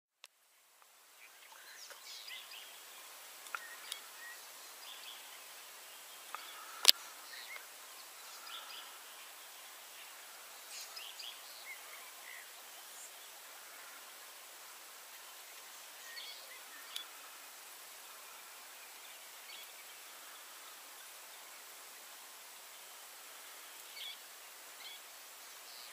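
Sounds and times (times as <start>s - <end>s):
steady hiss: 0.2s - 25.9s
faint bird chirps: 0.5s - 14.1s, 15.4s - 17.3s
faint ticks: 3.4s - 4.1s, 6.3s - 7.7s, 15.1s - 17.2s.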